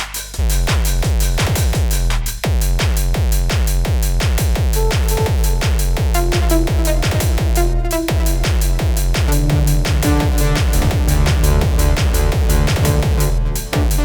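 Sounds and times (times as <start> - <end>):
hi-hat ticks: 0.0 - 14.0
deep pulsing bass: 0.4 - 14.0
held synth notes: 4.8 - 14.0
pitch-falling electronic blips: 4.8 - 14.0.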